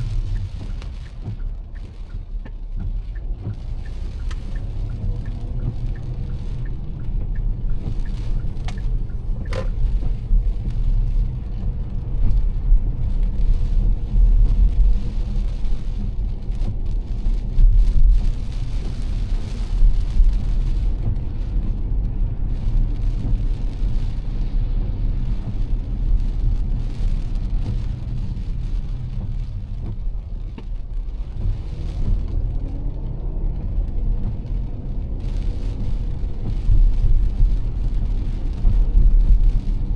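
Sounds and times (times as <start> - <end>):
sharp tick: 0.0 - 12.4
car road rumble: 0.0 - 39.9
rain and wet tyres hissing: 0.0 - 39.9.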